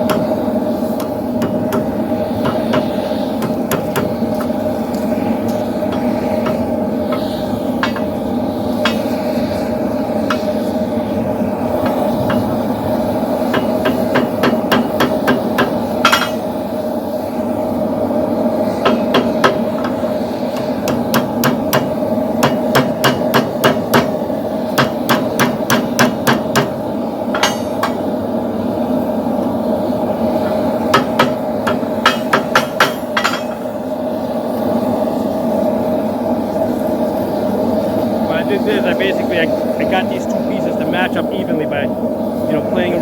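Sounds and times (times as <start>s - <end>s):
hammer striking steel on anvil: 0.0s - 0.4s, 1.0s - 4.6s, 5.4s - 9.2s, 10.2s - 10.6s, 11.8s - 12.6s, 13.5s - 16.6s, 18.8s - 24.2s, 24.8s - 28.1s, 30.9s - 33.8s
steady low hum: 0.0s - 43.0s.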